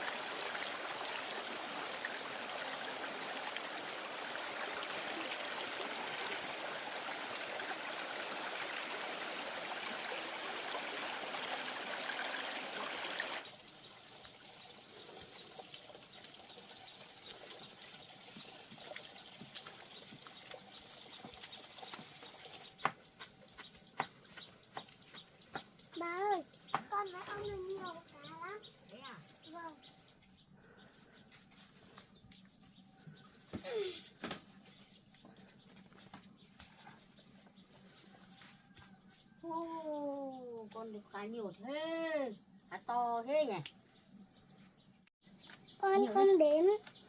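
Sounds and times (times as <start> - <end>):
stream water running: 0.0 - 30.0.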